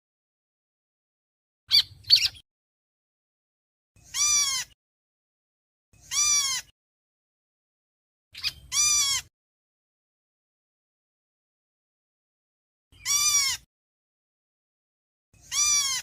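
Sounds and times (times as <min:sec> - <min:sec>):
bird harsh calls: 0:01.7 - 0:02.4, 0:04.0 - 0:04.8, 0:06.0 - 0:06.7, 0:08.4 - 0:09.3, 0:13.0 - 0:13.7, 0:15.4 - 0:16.0.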